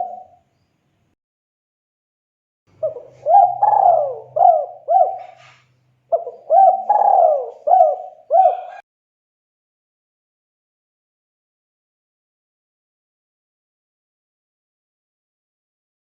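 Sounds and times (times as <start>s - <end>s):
dove cooing: 0.0s - 0.4s, 2.8s - 8.8s.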